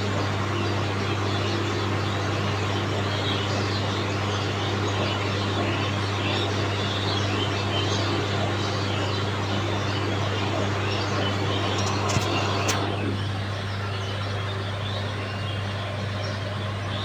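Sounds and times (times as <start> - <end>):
low hum: 10.4 - 13.8
sharp clicks: 11.7 - 13.0.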